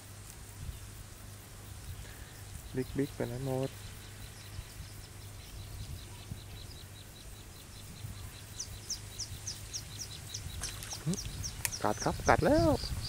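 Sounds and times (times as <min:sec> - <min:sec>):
bird chirping: 0:01.8 - 0:13.0.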